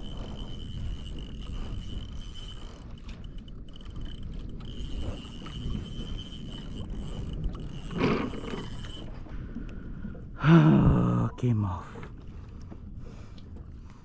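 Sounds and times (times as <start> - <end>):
wind noise: 0.0 - 11.2
water noise: 0.0 - 14.0.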